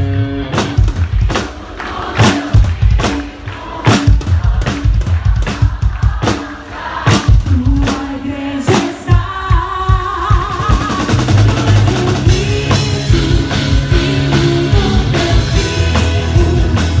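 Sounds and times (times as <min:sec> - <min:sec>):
bass: 0:00.0 - 0:06.4, 0:07.1 - 0:17.0
drum kit beat: 0:00.0 - 0:17.0
person singing: 0:07.4 - 0:17.0.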